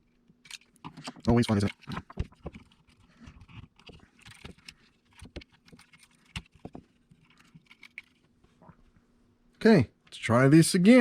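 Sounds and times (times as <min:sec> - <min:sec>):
small plastic parts clicking: 0:00.3 - 0:08.2.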